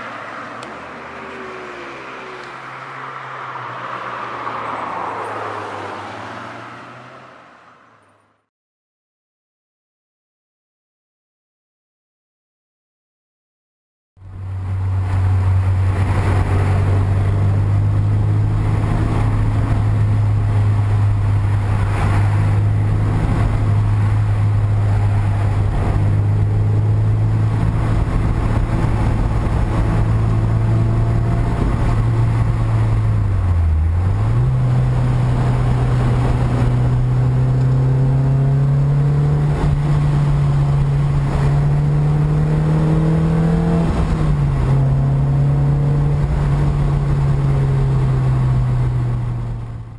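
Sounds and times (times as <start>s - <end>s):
sports car engine from inside: 14.2s - 49.9s.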